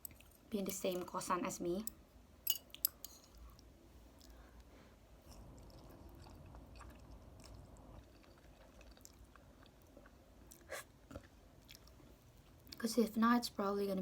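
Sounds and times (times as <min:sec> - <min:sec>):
chewing noodles: 0:05.2 - 0:12.8.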